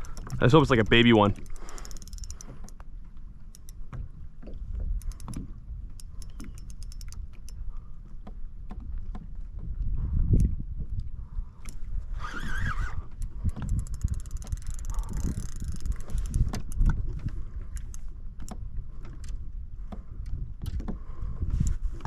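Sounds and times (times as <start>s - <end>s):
fishing reel clicking: 0.0s - 2.9s, 3.5s - 3.8s, 5.0s - 7.7s, 11.6s - 17.0s, 17.7s - 18.6s
wind and water rumble: 0.0s - 22.0s.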